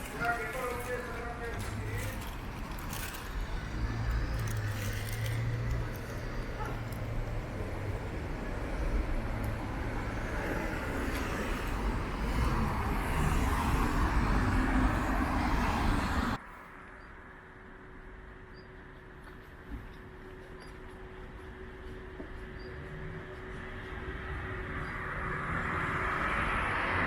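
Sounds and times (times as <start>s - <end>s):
low traffic rumble: 0.0s - 27.0s.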